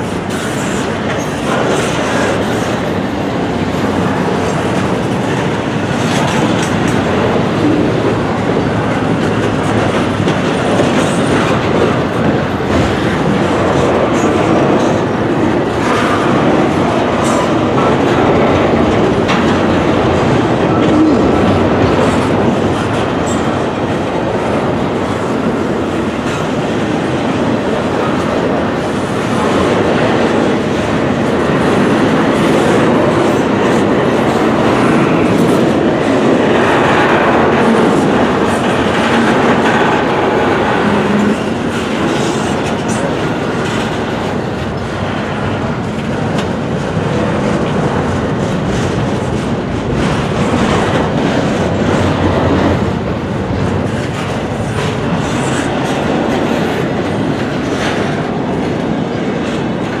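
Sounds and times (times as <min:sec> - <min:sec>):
freight train wheels rumbling on rails: 0:00.0 - 1:00.0
wheels clicking over rail joints: 0:00.0 - 1:00.0.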